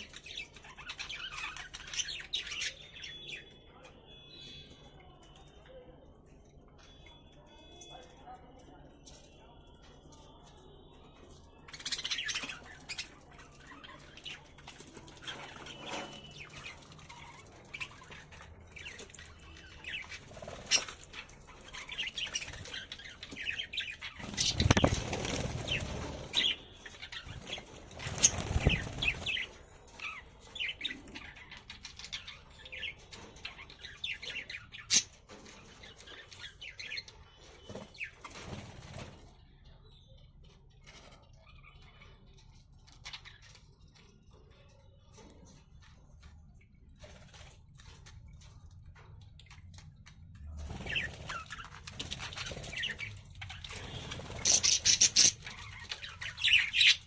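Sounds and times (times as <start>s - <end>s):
wings flapping: 24.2s - 26.5s, 27.3s - 29.5s
budgerigars chirping: 50.7s - 57.0s.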